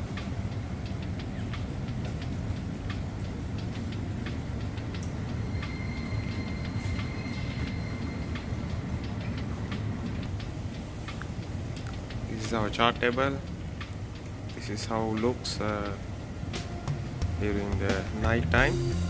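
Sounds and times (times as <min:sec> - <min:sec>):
low rumble of ship machinery: 0:00.0 - 0:19.0
high electronic tone: 0:18.4 - 0:19.0.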